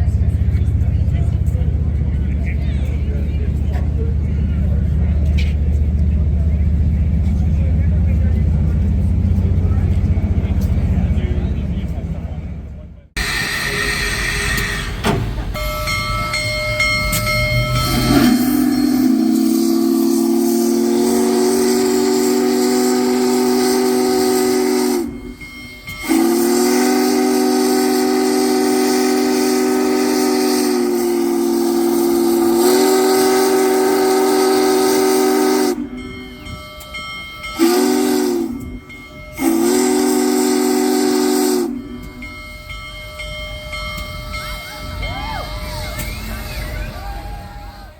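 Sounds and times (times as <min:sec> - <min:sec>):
steam locomotive chime whistle: 0:13.2 - 0:47.9.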